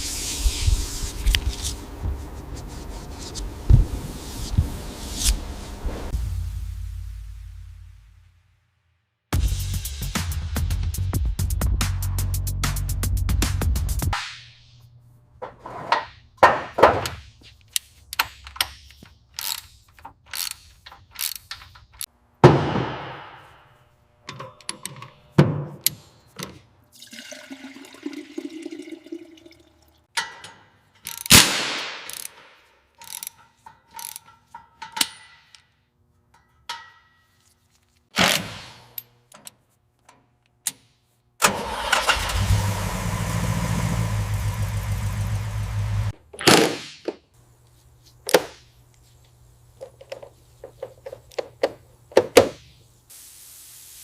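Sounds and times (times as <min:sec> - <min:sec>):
car engine running: 0:42.3 - 0:46.1.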